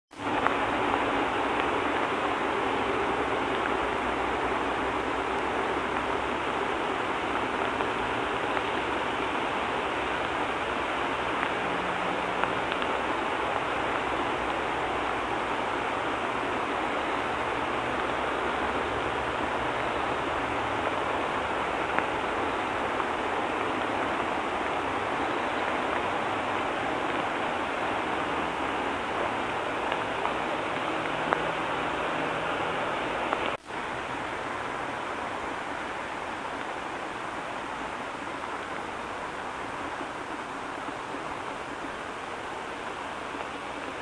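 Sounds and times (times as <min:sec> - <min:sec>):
steady rain falling: 0:00.1 - 0:44.0.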